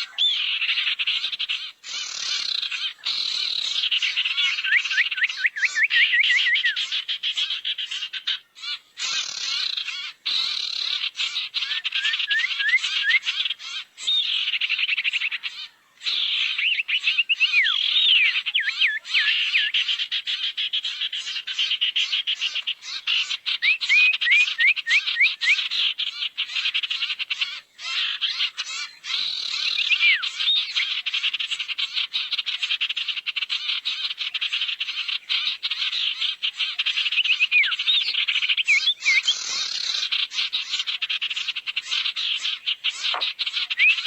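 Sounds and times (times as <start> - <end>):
bird chattering trill: 36.6 - 40.4, 41.8 - 44.0.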